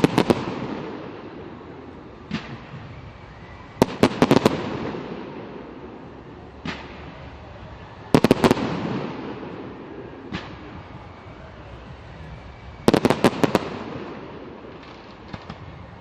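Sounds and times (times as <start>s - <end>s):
fireworks bangs: 0.0s - 16.0s
soft firework pops: 10.2s - 11.1s, 14.7s - 15.8s.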